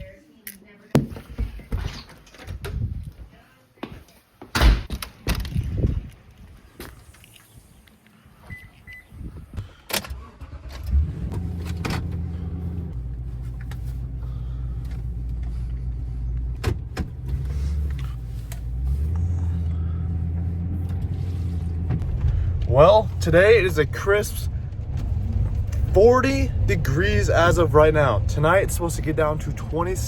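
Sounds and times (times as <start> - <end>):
truck engine running: 10.4 - 30.0.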